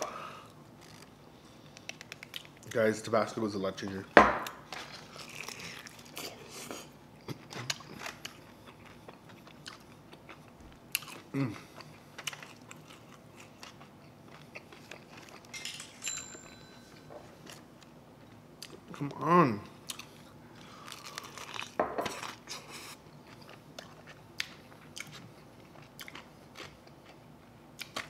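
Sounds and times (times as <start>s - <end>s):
chewing and mouth smacks: 1.7s - 2.7s, 7.2s - 15.5s, 17.4s - 19.1s, 19.8s - 28.0s
person humming: 11.3s - 11.6s.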